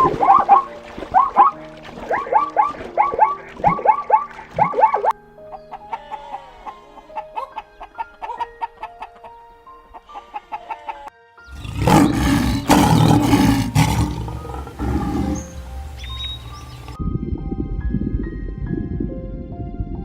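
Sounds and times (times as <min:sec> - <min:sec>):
plucked light music: 0:00.0 - 0:20.0
rough animal roar: 0:11.5 - 0:17.0.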